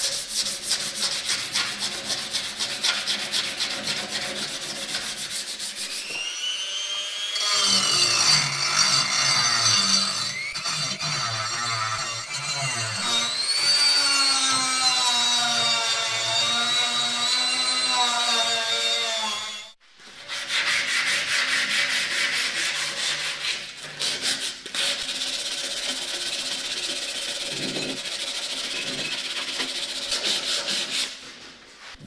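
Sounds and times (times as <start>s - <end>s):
abrasive sanding strokes: 0.0s - 6.2s, 20.1s - 32.0s
power tool whining: 5.8s - 11.4s.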